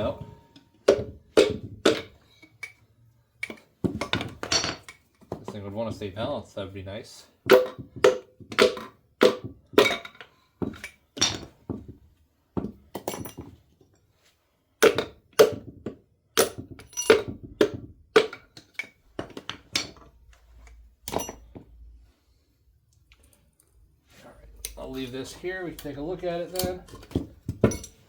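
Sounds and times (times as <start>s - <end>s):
metallic knocks and clinks: 0.0s - 2.8s, 3.4s - 5.5s, 7.5s - 12.0s, 12.6s - 13.6s, 16.4s - 20.1s, 21.0s - 21.7s, 26.5s - 28.0s.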